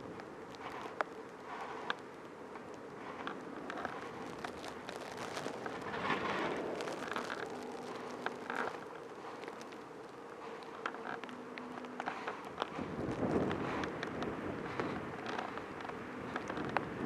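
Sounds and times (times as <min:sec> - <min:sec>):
faint steady hum: 0:00.0 - 0:17.0
wind and blowing snow: 0:00.0 - 0:17.0.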